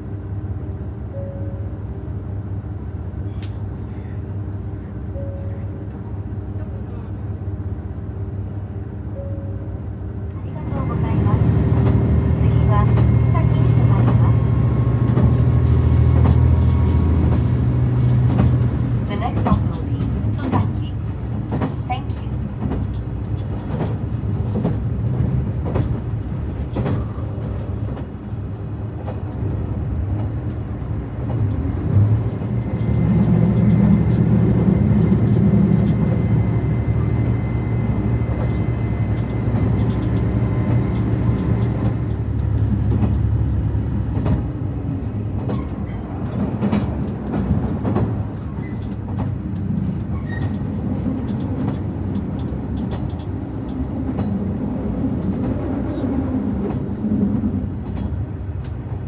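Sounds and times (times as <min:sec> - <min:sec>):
train cabin rumble: 0:00.0 - 0:59.0.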